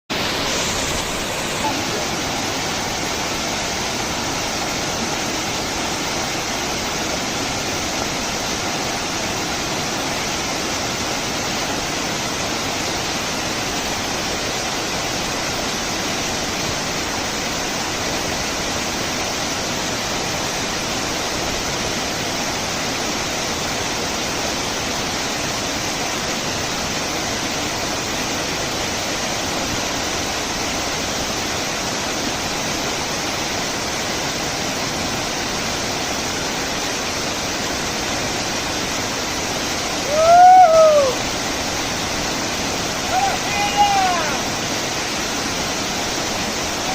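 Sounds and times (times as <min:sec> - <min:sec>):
waterfall rushing: 0:00.1 - 0:46.9.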